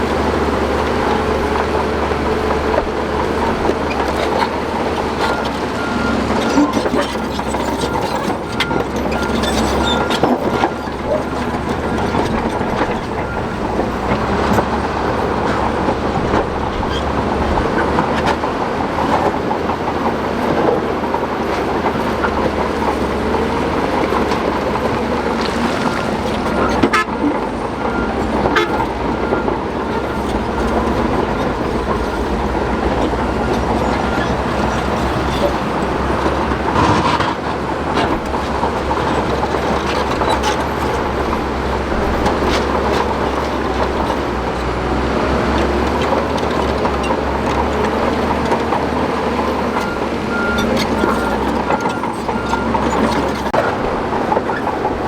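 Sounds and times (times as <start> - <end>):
diesel engine under load: 0.0 - 55.0
steel tracks clanking: 0.0 - 55.0
reversing alarm beeping: 4.4 - 16.7, 49.6 - 53.8
rock grinding and knocking: 22.2 - 27.0, 29.9 - 55.0.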